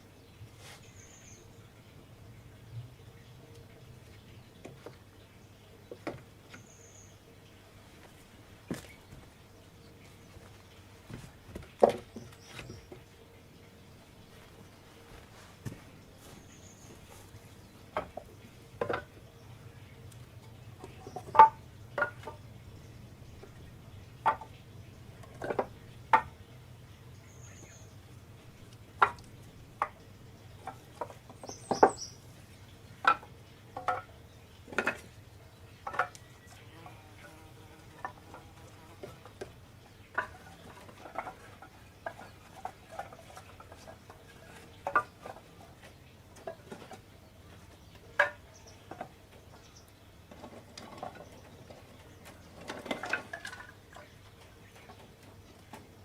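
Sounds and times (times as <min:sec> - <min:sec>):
wooden knocks and clatters: 0:05.9 - 0:06.6, 0:10.4 - 0:13.1, 0:17.8 - 0:19.3, 0:20.4 - 0:26.4, 0:28.6 - 0:32.2, 0:33.0 - 0:35.2, 0:35.8 - 0:36.3, 0:38.0 - 0:56.0.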